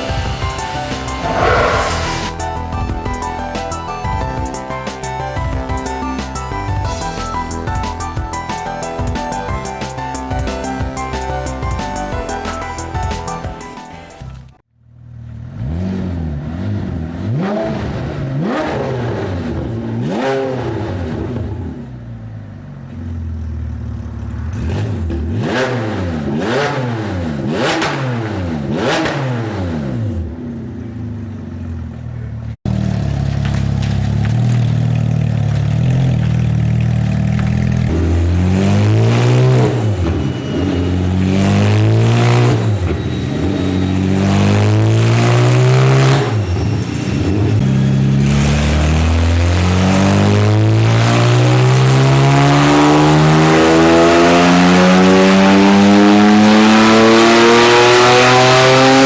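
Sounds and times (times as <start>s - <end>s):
sports car engine revving: 0.6s - 2.6s, 24.5s - 30.8s, 47.9s - 59.0s.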